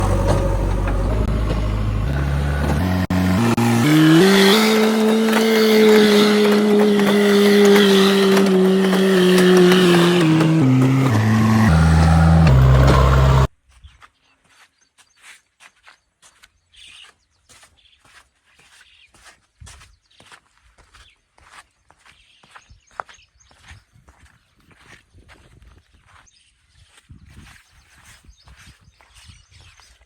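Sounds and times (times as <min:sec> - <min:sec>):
electronic engine-revving sound: 0:00.0 - 0:13.5.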